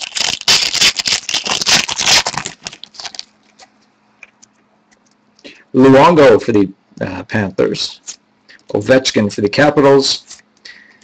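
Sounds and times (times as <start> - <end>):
card pack wrapper crinkling and tearing: 0.0 - 3.7.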